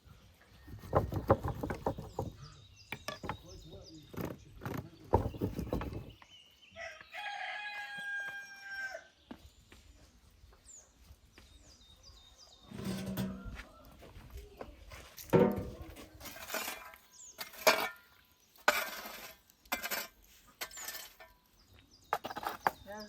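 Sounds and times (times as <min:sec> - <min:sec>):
rooster crowing: 0:06.8 - 0:09.1.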